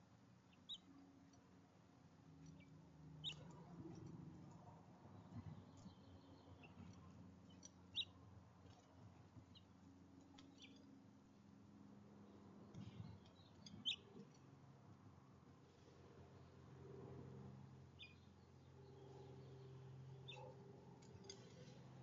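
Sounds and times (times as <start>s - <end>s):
high bird chirps: 2.6s - 3.5s.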